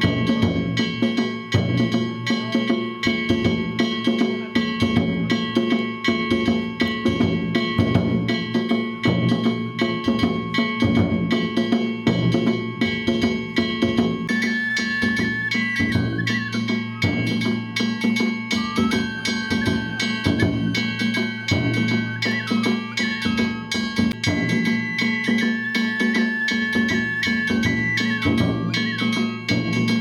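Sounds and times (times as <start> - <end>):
hand gongs ringing: 0.0 - 30.0
taiko drum beating: 0.0 - 30.0.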